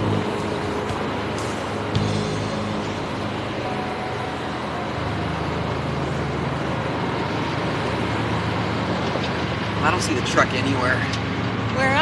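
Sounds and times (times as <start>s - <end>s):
car engine hum: 0.0s - 12.0s
road noise: 0.0s - 12.0s.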